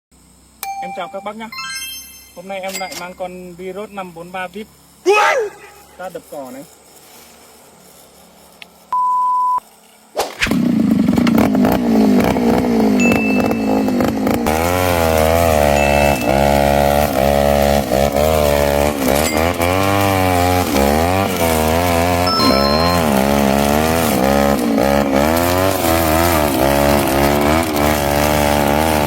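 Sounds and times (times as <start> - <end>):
short beep: 0.6 - 3.2, 13.0 - 14.0, 22.3 - 23.4
brush cutter engine revving: 10.4 - 29.0.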